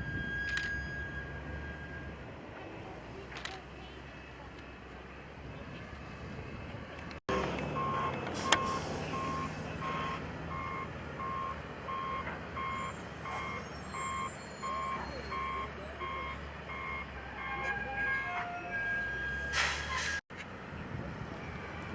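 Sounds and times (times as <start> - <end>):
reversing alarm beeping: 0.0 - 2.2, 7.7 - 20.2
vehicle engine noise: 0.0 - 18.2, 18.9 - 21.9.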